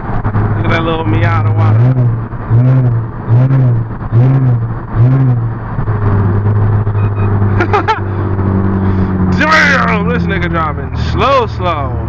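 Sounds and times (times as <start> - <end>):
car engine hum: 0.0 - 12.0
road noise inside car: 0.0 - 12.0.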